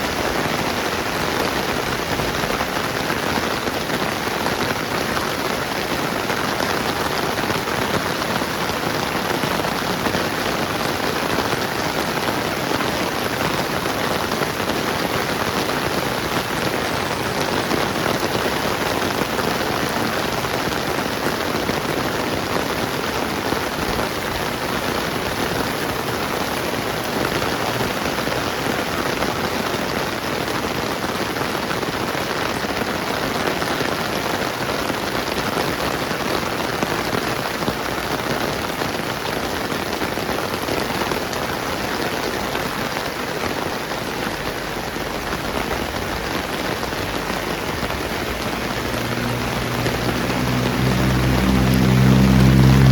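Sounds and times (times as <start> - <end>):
rain pattering on surfaces: 0.0 - 52.9.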